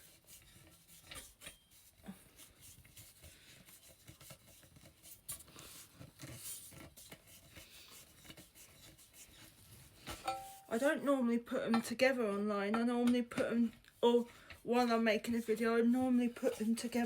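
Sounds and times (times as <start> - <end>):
metal poles rubbing scrapes: 8.2 - 11.0, 14.0 - 17.0
metal poles clicking: 10.2 - 10.8.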